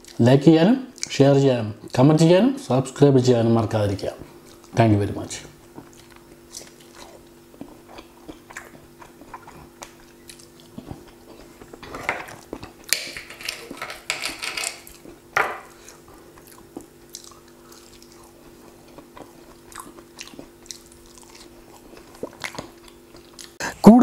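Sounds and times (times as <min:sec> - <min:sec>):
person chewing crisp food: 0:00.0 - 0:00.2, 0:04.3 - 0:04.8, 0:05.6 - 0:13.8, 0:14.7 - 0:23.6
faint steady hum: 0:00.0 - 0:24.0
knife and plate crackling: 0:08.6 - 0:16.1.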